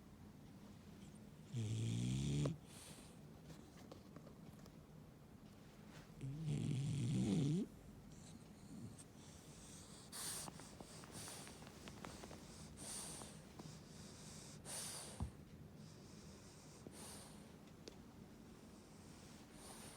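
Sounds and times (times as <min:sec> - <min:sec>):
dog snorty breathing: 0:06.2 - 0:17.5, 0:18.8 - 0:19.9.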